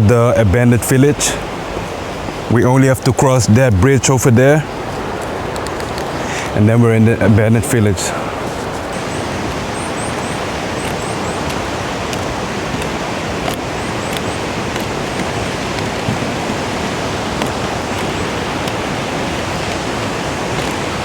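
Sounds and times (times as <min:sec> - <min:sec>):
river rushing: 0:00.0 - 0:21.0.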